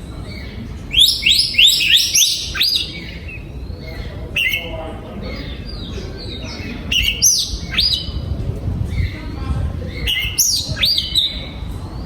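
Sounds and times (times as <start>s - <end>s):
magpie-robin singing: 0.0s - 12.0s.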